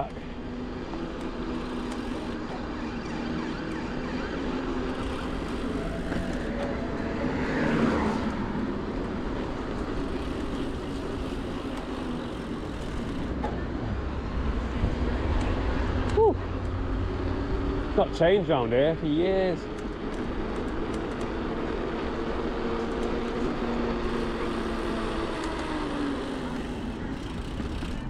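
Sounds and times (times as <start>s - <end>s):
road noise: 0.0s - 28.0s
vehicle passing close by: 3.4s - 10.4s.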